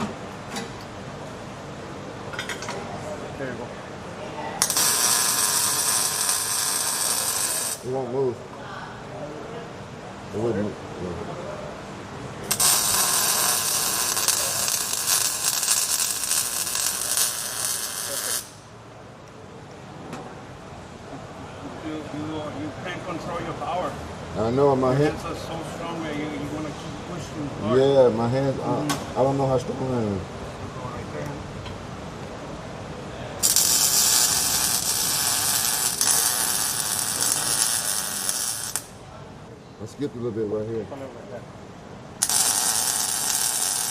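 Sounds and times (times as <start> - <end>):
welding arc crackling hiss: 4.6 - 7.9, 12.4 - 18.7, 33.4 - 39.0, 42.2 - 43.9.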